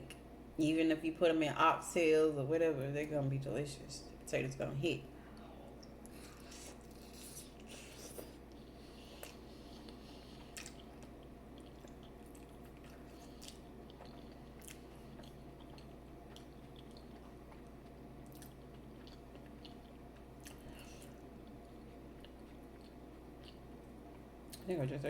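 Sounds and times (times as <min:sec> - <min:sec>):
low steady hum: 0:00.0 - 0:25.0
person chewing food: 0:05.3 - 0:24.6.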